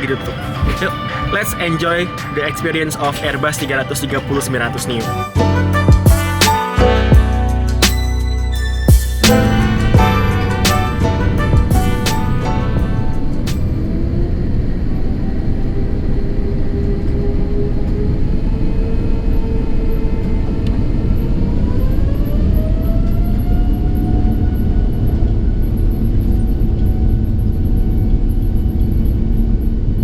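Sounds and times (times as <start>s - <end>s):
jet engine whine: 13.2s - 30.0s.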